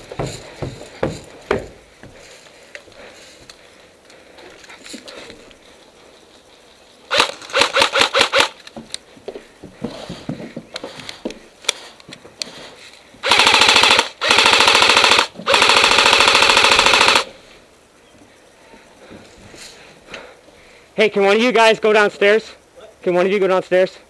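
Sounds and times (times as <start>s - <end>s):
airsoft gun shots: 7.1s - 8.6s
full-auto airsoft bursts: 7.1s - 8.6s, 13.2s - 17.3s.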